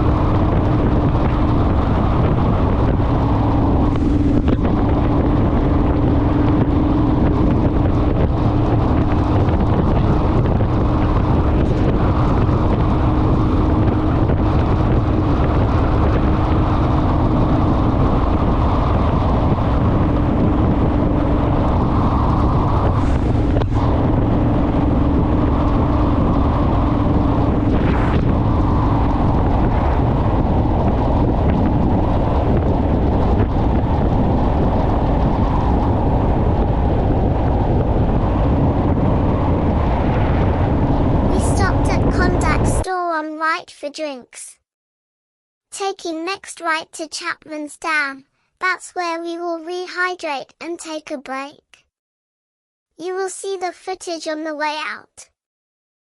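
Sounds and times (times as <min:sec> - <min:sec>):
motorcycle engine drone: 0:00.0 - 0:42.8
wind noise on microphone: 0:00.0 - 0:44.5.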